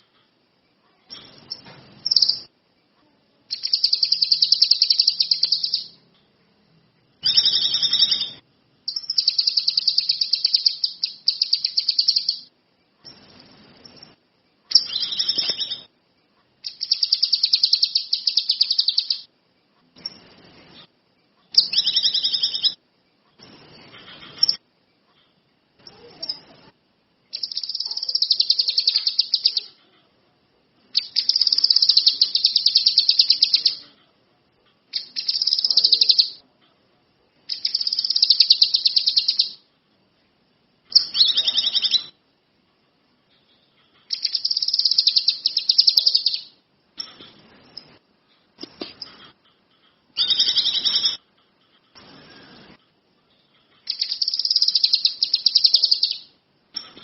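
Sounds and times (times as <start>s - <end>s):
songbird trilling: 3.5s - 6.0s, 7.2s - 12.5s, 14.7s - 15.9s, 16.7s - 19.3s, 21.6s - 22.8s, 27.3s - 29.8s, 31.0s - 33.8s, 35.0s - 36.4s, 37.5s - 39.6s, 40.9s - 42.2s, 44.1s - 46.6s, 50.2s - 51.2s, 53.9s - 56.3s.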